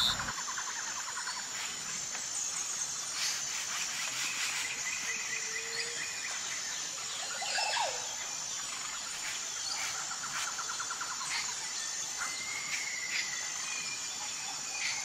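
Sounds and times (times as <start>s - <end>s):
bird trill: 0.0s - 0.3s
high-pitched buzz: 0.0s - 0.3s
small birds chirping and singing: 0.0s - 0.4s.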